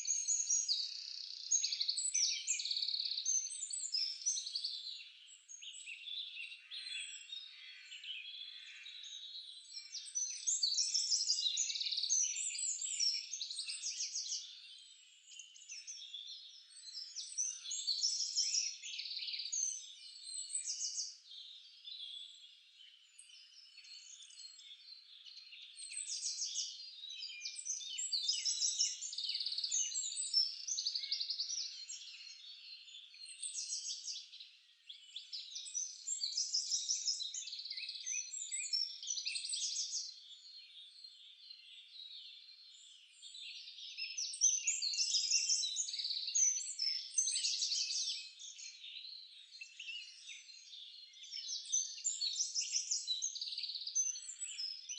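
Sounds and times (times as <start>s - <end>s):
songbirds singing and chirping: 0.0s - 54.9s.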